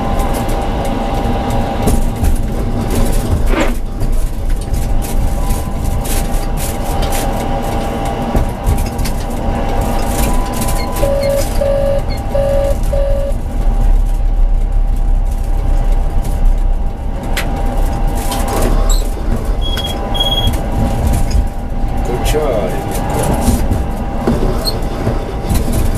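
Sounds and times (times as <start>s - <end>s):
tram rumbling and whining: 0.0s - 25.9s
short beeps: 10.8s - 13.4s
short high beeps: 10.9s - 13.4s.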